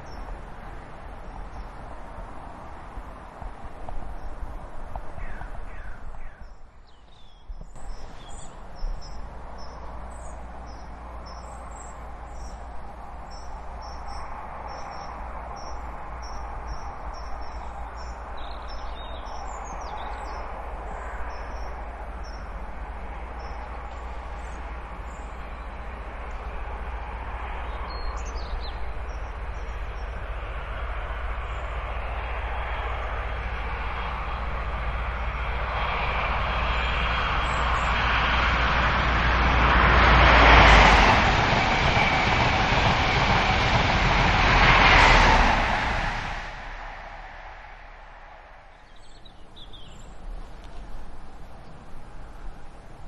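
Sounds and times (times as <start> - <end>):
train rushing rumble: 0.0 - 6.2, 7.6 - 50.3
birds chirping: 47.9 - 50.7.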